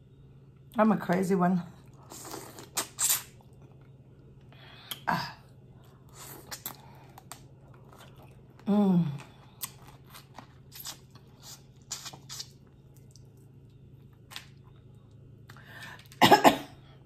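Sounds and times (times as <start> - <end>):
eating crunches and slurps: 1.9 - 3.8, 6.1 - 13.4.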